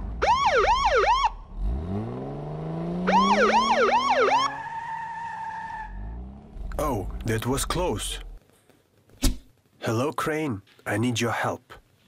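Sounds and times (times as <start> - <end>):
police siren yelping: 0.2 - 1.4, 3.0 - 6.0
car engine revving: 1.4 - 7.5.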